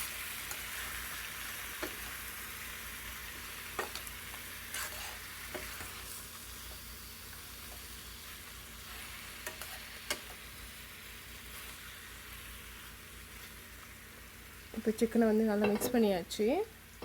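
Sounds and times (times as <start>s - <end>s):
chicken sizzling in a pan: 0.0s - 17.0s
spoon knocking against a pan: 15.6s - 16.0s.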